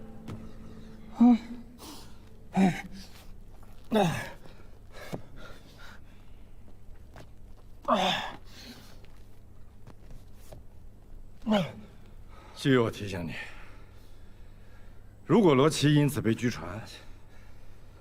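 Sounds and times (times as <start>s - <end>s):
woman sobbing: 0.8s - 3.2s.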